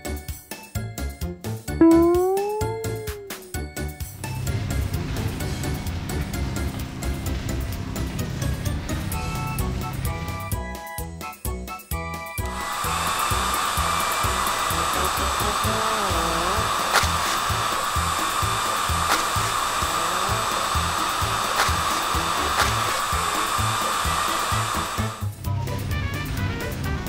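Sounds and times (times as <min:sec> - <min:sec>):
motor whirr: 0:12.4 - 0:25.3.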